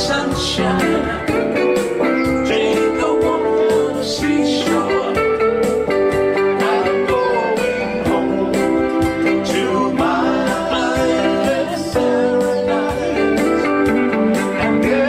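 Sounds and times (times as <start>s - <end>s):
person singing: 0.0s - 15.0s
strummed guitar: 0.0s - 15.0s.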